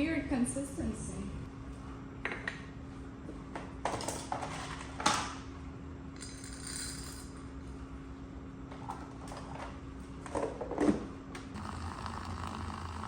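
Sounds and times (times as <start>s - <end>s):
low appliance hum: 0.0s - 13.0s.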